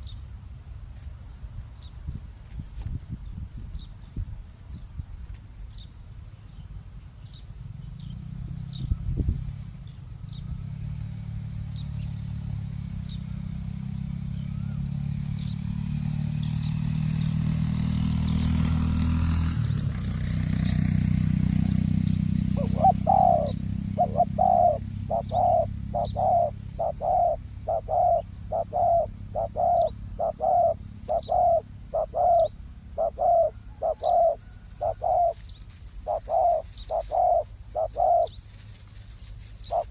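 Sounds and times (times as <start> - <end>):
small birds chirping faintly: 0.0 - 39.9
vehicle passing rumble: 0.0 - 39.9
dove cooing: 21.4 - 39.9.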